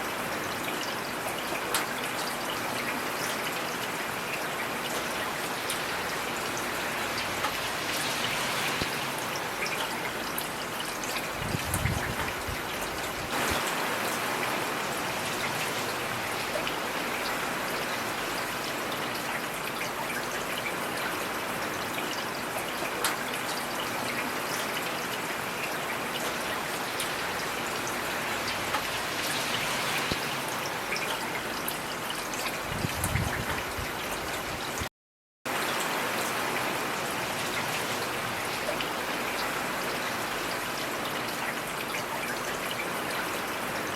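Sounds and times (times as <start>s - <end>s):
heavy rain hissing: 13.2s - 17.7s.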